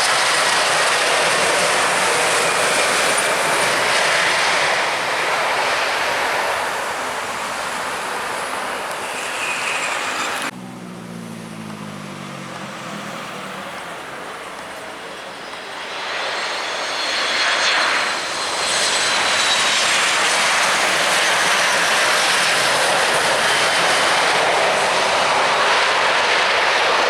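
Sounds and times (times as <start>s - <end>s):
aircraft engine low hum: 0.0s - 27.0s
airliner engines roaring: 0.0s - 27.0s.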